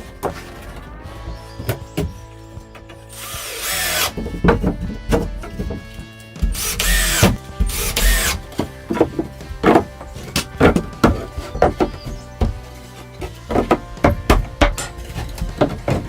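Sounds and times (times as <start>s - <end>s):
background music: 0.0s - 16.0s
power drill spinning: 2.9s - 4.2s, 6.5s - 8.5s.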